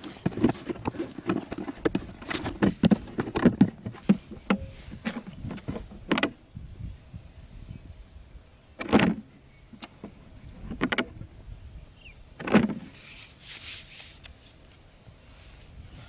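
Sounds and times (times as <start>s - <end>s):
rustling scraping: 0.0s - 6.1s, 12.6s - 16.0s
knocks and scrapes: 0.0s - 6.4s, 12.4s - 14.3s.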